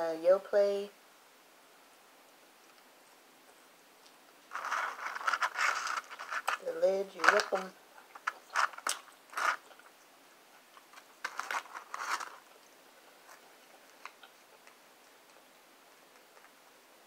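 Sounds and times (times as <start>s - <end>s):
crunching and chewing fries: 4.0s - 6.6s, 7.4s - 16.6s.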